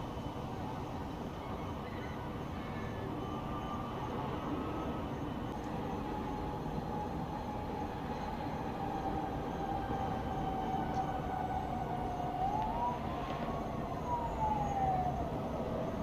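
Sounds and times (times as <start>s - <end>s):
emergency siren wailing: 6.0s - 16.0s.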